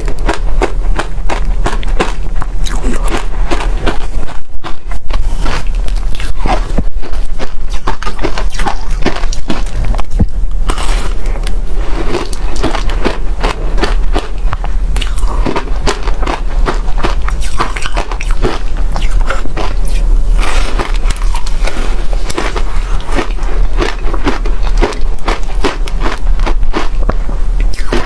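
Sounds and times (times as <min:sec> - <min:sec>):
frost being chewed: 0:00.0 - 0:28.0.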